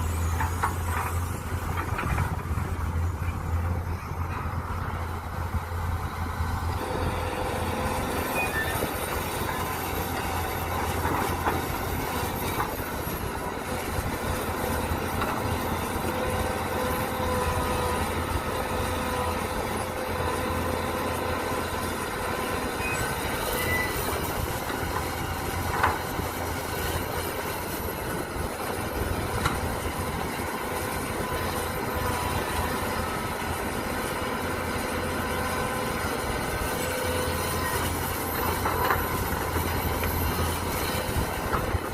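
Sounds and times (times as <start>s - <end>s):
hydraulic whine: 0.0s - 26.6s
excavator engine running: 0.0s - 41.9s
metal squeal: 8.0s - 9.8s, 22.7s - 24.3s.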